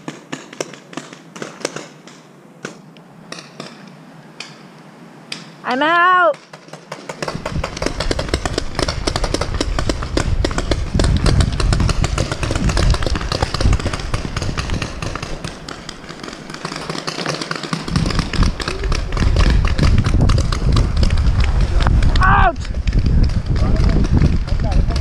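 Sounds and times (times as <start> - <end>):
paintball markers firing: 0.0 - 4.6, 6.3 - 25.0
heavy footfalls and jostling: 6.6 - 25.0.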